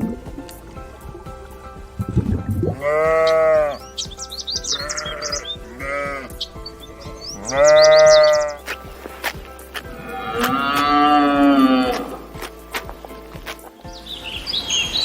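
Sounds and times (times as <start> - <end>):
background music: 0.0 - 15.0
high chirps: 0.0 - 15.0
farm animal bleating: 2.7 - 8.7, 9.9 - 12.3.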